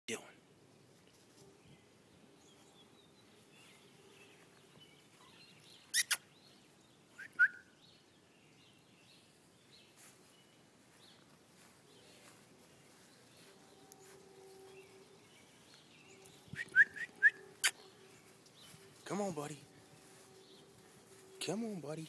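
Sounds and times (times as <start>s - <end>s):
faint bird chirps: 2.4s - 9.3s.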